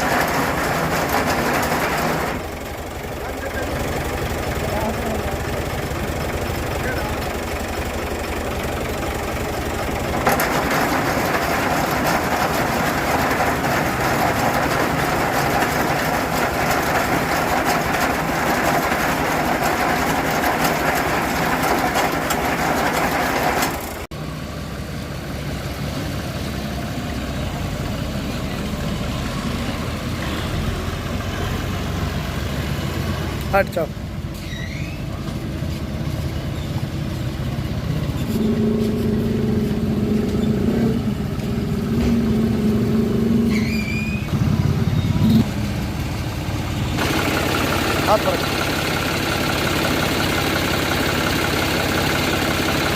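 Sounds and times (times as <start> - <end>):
loud noisy machine: 0.0 - 24.1, 44.1 - 52.9
tractor engine running: 0.0 - 52.9.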